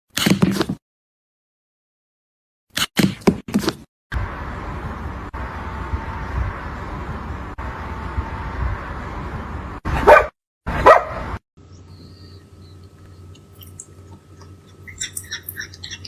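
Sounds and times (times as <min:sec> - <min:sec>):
rumbling background noise: 0:04.2 - 0:09.8
dog barking: 0:10.0 - 0:11.3.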